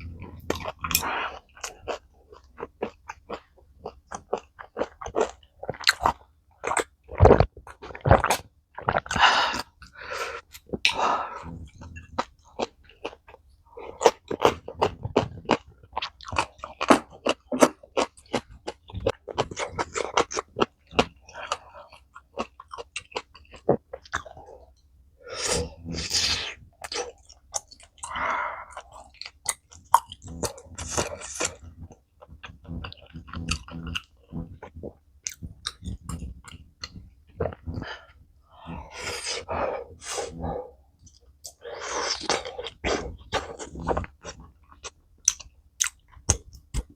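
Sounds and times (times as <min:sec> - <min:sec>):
close chewing and crunching: 0:00.0 - 0:46.9
breathy sounds: 0:25.2 - 0:26.6, 0:28.0 - 0:29.2, 0:37.4 - 0:40.9.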